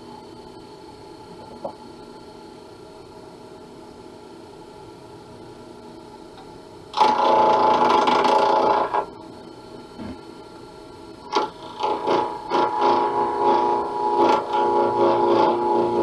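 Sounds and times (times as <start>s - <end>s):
lathe humming: 7.0s - 16.0s
turning tool scraping acrylic: 11.4s - 16.0s.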